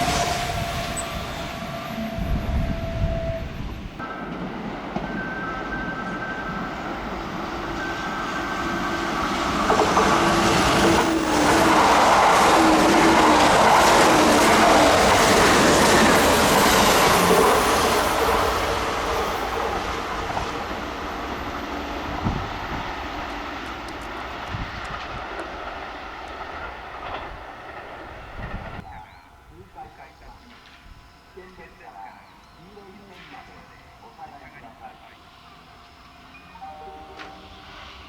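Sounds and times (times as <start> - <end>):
electric train passing: 0.0 - 38.0.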